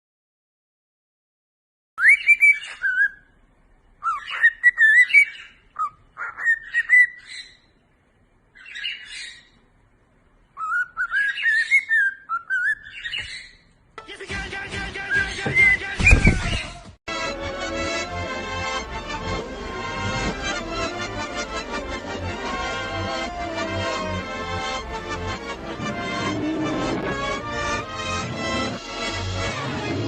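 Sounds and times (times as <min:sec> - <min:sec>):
chirping whistle-like animal calls: 0:02.0 - 0:03.4, 0:04.0 - 0:07.7, 0:10.6 - 0:13.6
music: 0:14.0 - 0:30.0.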